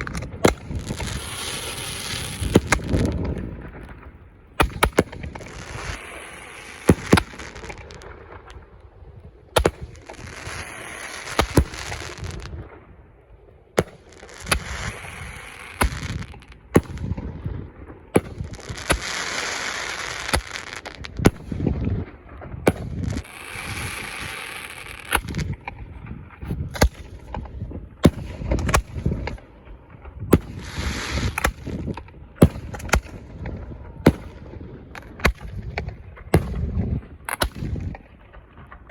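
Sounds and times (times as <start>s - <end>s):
fireworks hissing and crackling: 0.0s - 3.6s, 4.6s - 8.6s, 9.6s - 12.7s, 13.8s - 17.2s, 18.2s - 25.7s, 30.3s - 34.4s
fireworks bangs and pops: 0.0s - 13.0s, 13.8s - 38.9s.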